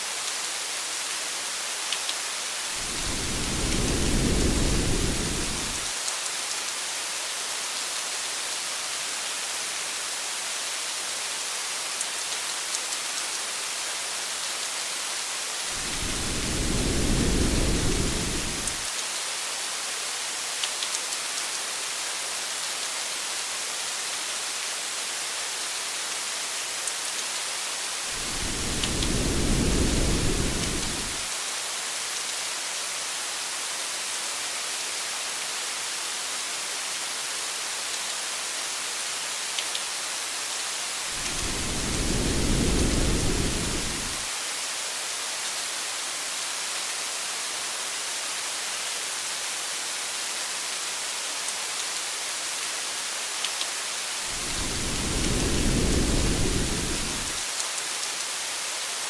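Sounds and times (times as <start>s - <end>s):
steady rain: 0.0s - 59.0s
low thunder rumbles: 2.8s - 5.9s, 15.8s - 18.8s, 28.2s - 31.2s, 41.2s - 44.3s, 54.3s - 57.4s.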